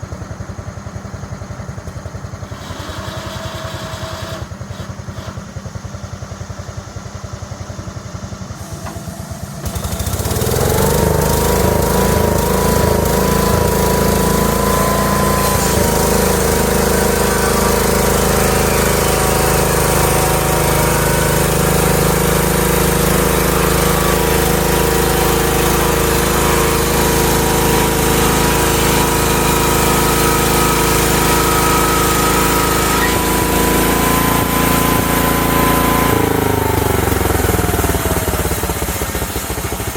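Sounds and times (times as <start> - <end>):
small gas engine running: 0.0 - 39.9.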